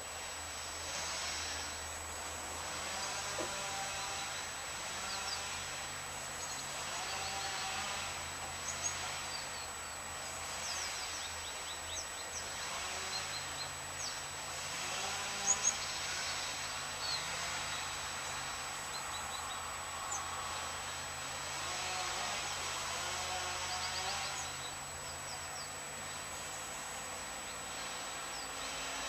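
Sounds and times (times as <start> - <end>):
outdoor background noise: 0.0 - 29.0
small birds chirping: 4.0 - 5.7, 6.3 - 7.8, 8.6 - 14.3, 15.2 - 20.3, 23.5 - 28.7.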